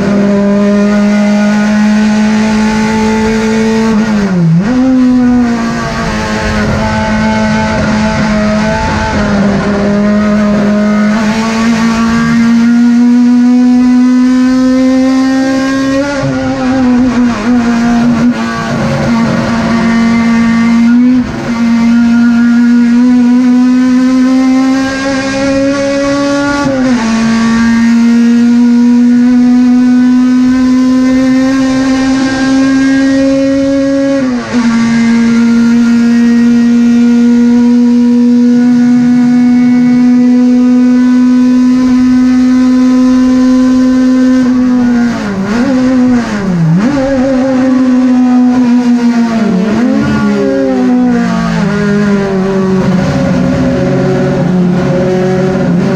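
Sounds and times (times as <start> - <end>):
race car engine at high revs: 0.0 - 55.9.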